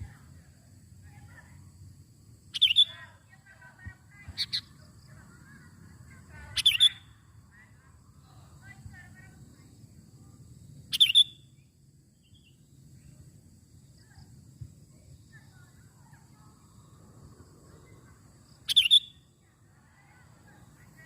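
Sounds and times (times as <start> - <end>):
faint low background noise: 0.0 - 21.0
bulbul calls: 2.5 - 4.8, 6.3 - 7.2, 10.9 - 11.5, 18.6 - 19.3.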